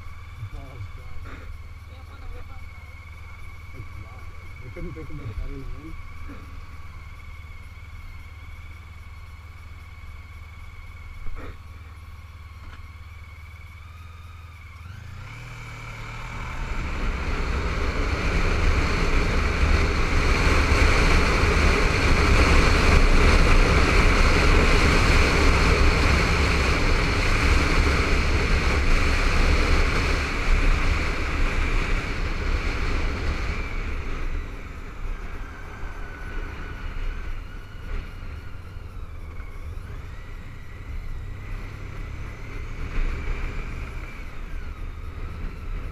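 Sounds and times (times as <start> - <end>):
motorcycle engine: 0.0 - 45.9.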